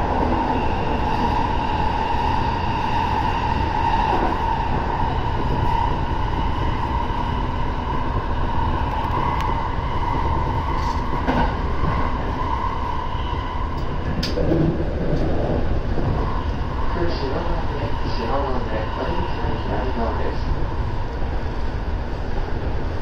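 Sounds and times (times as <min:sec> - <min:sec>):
train wheels rumbling: 0:00.0 - 0:23.0.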